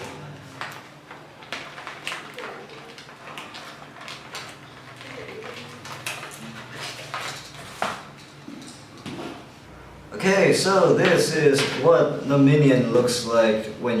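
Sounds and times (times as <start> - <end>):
toy packaging clicks and crackles: 0.6 - 8.7.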